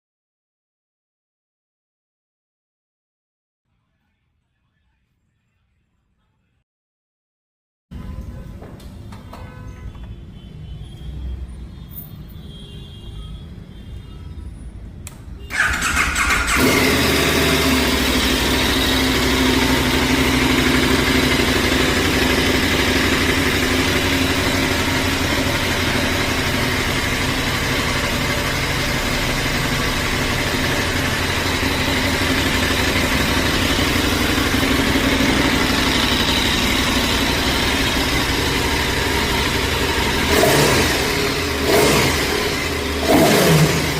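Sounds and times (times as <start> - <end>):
motorcycle engine starting and idling: 15.4 - 43.9.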